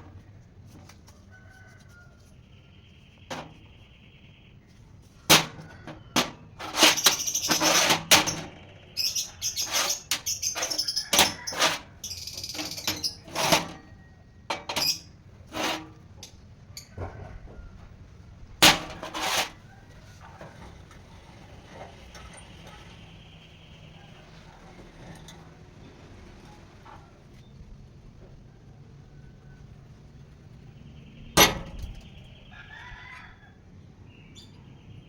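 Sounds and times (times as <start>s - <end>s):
sharp knocks and clatters: 5.3s - 13.9s, 31.4s - 32.2s.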